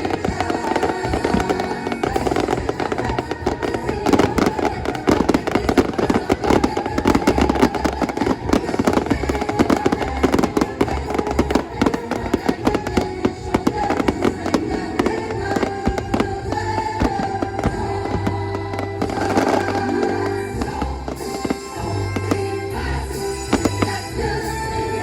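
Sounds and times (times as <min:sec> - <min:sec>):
fireworks bursting and crackling: 0:00.0 - 0:25.0
show music from loudspeakers: 0:00.0 - 0:25.0.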